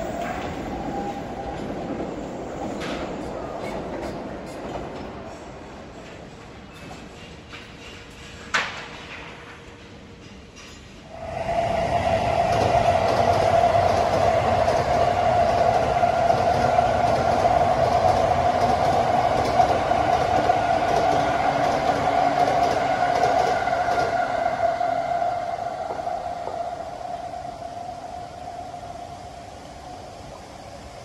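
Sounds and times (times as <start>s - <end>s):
high train whine: 0.0s - 31.0s
wheels rumbling on track: 11.2s - 28.8s.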